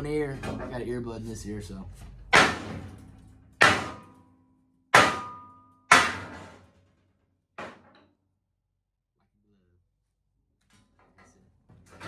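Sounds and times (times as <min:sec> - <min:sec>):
hammer clanging on steel: 0:02.3 - 0:04.3, 0:05.0 - 0:06.6.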